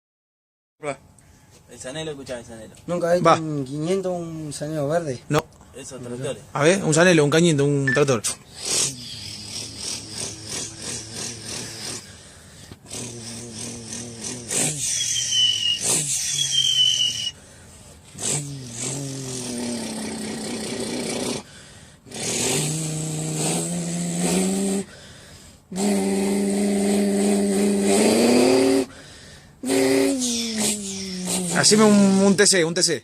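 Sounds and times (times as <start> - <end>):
man imitating engines with mouth: 8.3 - 17.4, 18.1 - 32.5.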